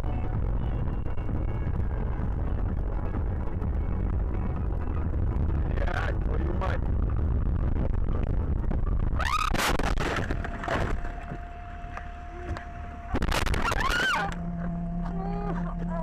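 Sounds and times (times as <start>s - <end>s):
steady tone: 0.0s - 16.0s
short squealing glides: 9.2s - 16.0s
car crashing: 9.3s - 11.4s.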